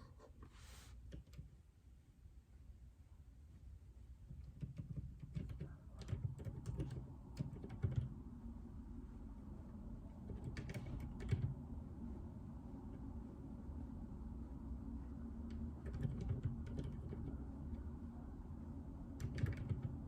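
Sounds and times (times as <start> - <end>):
mechanical keyboard typing: 4.4 - 8.2, 10.2 - 11.6, 15.5 - 17.4, 19.1 - 20.0.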